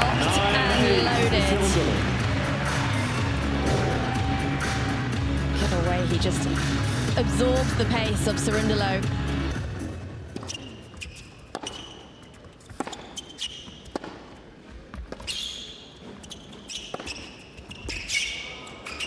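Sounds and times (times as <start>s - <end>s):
shoe squeaks on court: 10.4s - 19.0s
racket striking tennis ball: 11.5s - 12.0s, 12.7s - 14.4s.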